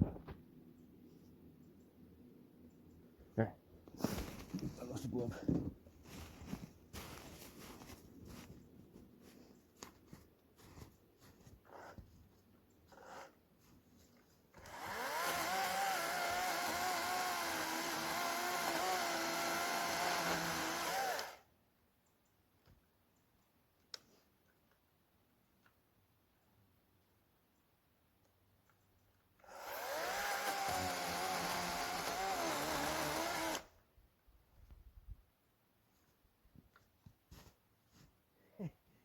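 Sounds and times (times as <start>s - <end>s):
electric chainsaw whine: 14.6s - 21.4s, 29.4s - 33.7s.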